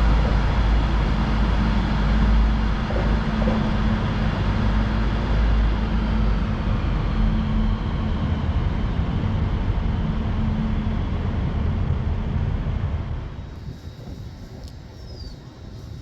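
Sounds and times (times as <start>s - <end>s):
train passing: 0.0s - 9.0s, 12.6s - 16.0s.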